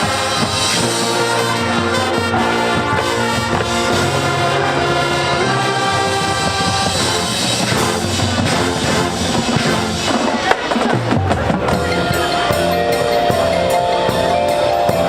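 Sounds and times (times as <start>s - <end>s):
brass holding chords: 0.0s - 10.1s
drums: 0.0s - 15.0s.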